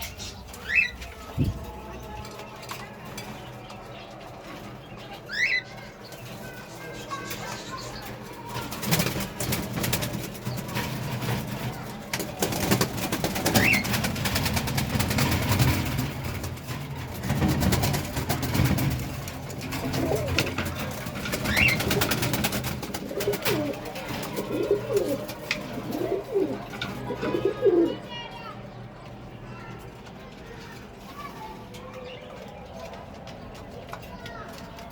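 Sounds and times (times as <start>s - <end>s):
pigeons cooing: 11.7s - 16.5s, 17.2s - 28.0s.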